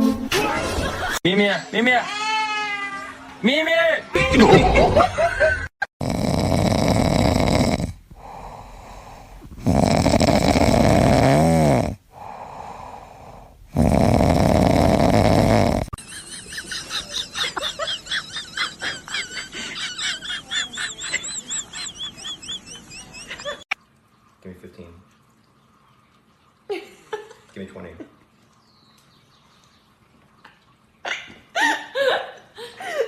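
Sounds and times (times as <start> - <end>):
loud snoring: 6.0 - 16.0
quiet breaths: 7.9 - 11.0, 11.9 - 14.5.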